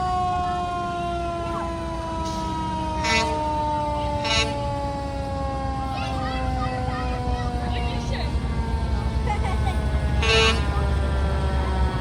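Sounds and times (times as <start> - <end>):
fire truck siren wailing: 0.0 - 12.0
low engine rumble: 0.0 - 12.0
short horn blasts: 3.0 - 3.4, 10.2 - 10.9.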